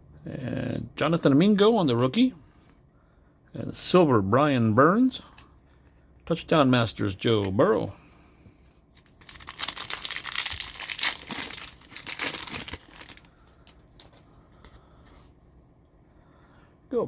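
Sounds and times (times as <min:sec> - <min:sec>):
foil wrapper tearing and crinkling: 0:09.0 - 0:14.1.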